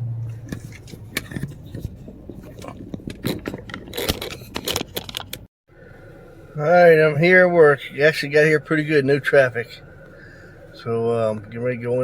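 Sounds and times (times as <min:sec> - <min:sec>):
scraping and rubbing: 0:00.4 - 0:05.5.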